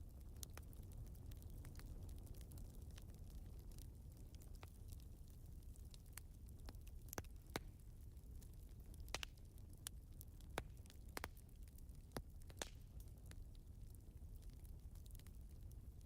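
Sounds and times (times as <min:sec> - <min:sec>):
fire low rumble: 0:00.0 - 0:16.0
wood fire pops and snaps: 0:00.0 - 0:16.0.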